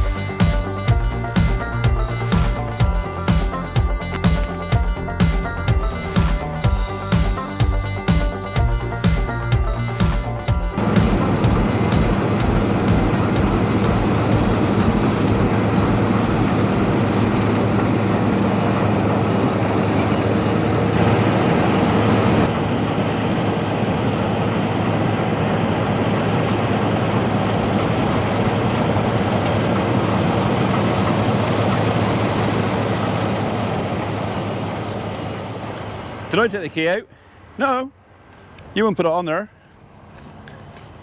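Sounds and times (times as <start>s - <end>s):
diesel machinery engine drone: 0.0s - 37.6s
hiss: 10.8s - 17.4s.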